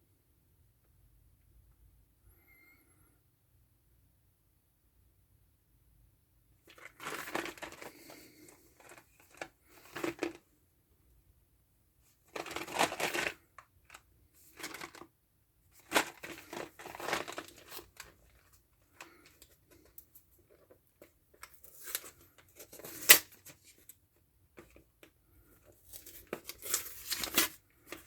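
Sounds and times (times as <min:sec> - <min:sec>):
cardboard box rustling: 0:06.7 - 0:08.2, 0:08.8 - 0:10.4, 0:12.3 - 0:13.4, 0:14.5 - 0:15.0, 0:15.8 - 0:18.1.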